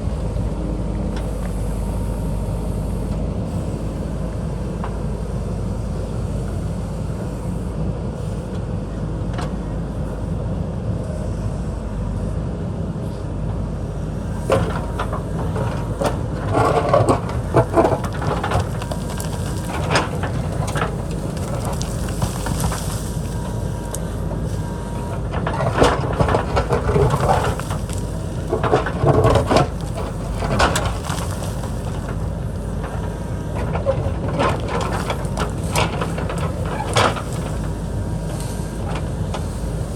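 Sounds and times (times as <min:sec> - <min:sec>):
diesel engine running: 0:00.0 - 0:39.9
bucket clanking and scraping rock: 0:14.4 - 0:39.9.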